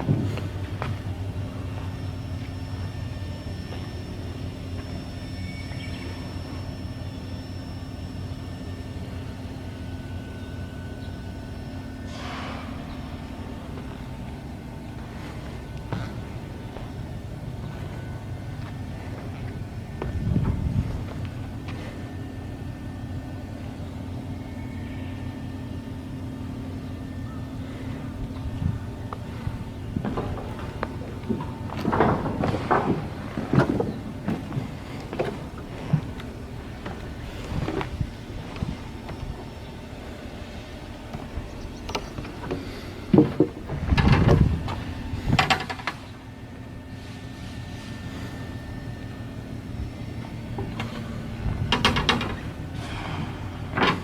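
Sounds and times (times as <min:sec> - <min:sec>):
machinery humming: 0:00.0 - 0:54.0
knocks and clatters: 0:30.0 - 0:39.3.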